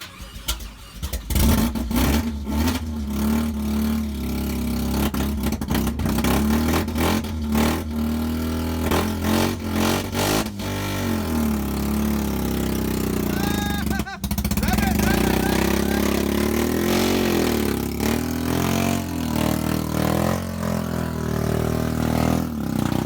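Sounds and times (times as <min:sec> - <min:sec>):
car engine starting and running: 0:00.0 - 0:23.0
sharp exhaust pops: 0:08.8 - 0:23.0.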